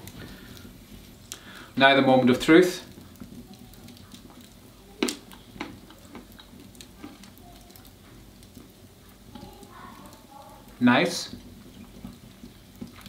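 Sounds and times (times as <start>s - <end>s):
hazelnut cracking: 2.8s - 10.2s
faint clicks and crunches: 2.8s - 13.0s.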